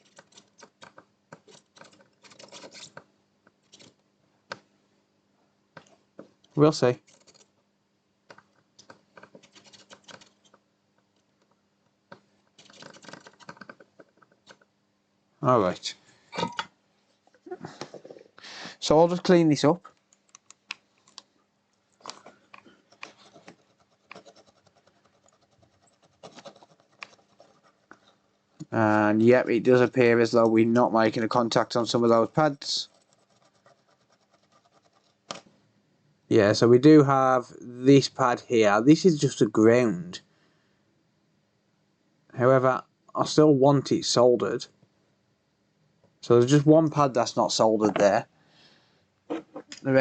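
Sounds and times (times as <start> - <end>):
faint scratching and rubbing: 0.0 - 4.0, 8.8 - 10.6, 12.5 - 14.7, 22.0 - 29.8, 31.9 - 35.4
soldering tool scratching: 23.0 - 28.2.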